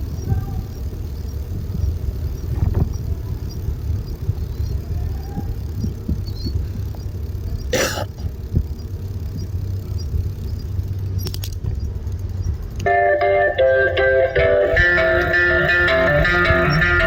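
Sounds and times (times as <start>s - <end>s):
wind and road noise rumble: 0.0s - 17.0s
faint clicks: 1.1s - 12.9s
guitar music: 12.8s - 17.0s.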